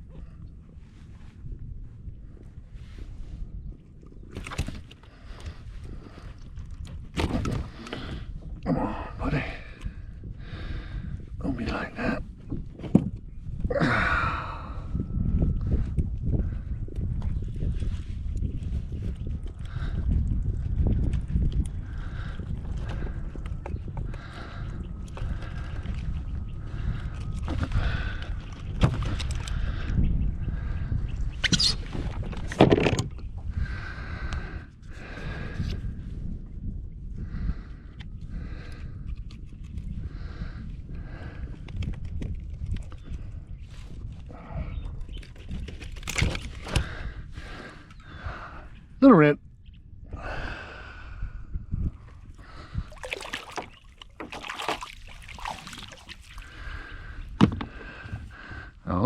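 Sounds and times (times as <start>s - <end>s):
wind rumbling on microphone: 0.0s - 59.0s
water splashing and sloshing: 4.0s - 8.6s, 20.6s - 29.7s, 52.1s - 58.4s.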